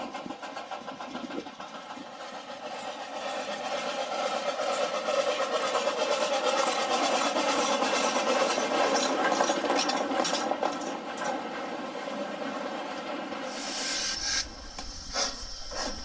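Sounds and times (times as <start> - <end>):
railway locomotive running: 0.0 - 16.0.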